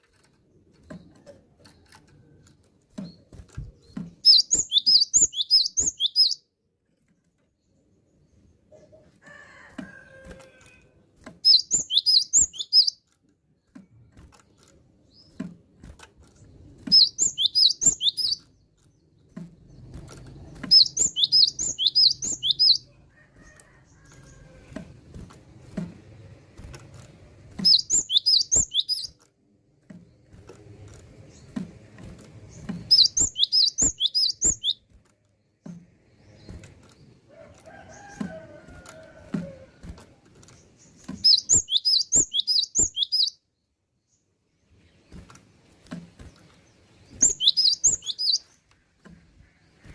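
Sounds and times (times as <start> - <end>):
bird chirping rapidly: 3.8 - 6.4, 11.4 - 13.0, 16.9 - 18.7, 20.5 - 22.9, 27.6 - 29.2, 32.4 - 34.9, 40.6 - 43.6, 46.8 - 48.5.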